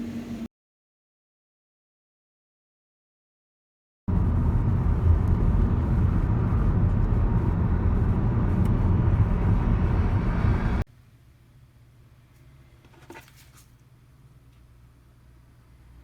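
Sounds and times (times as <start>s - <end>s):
low rumbling noise: 4.1s - 10.9s.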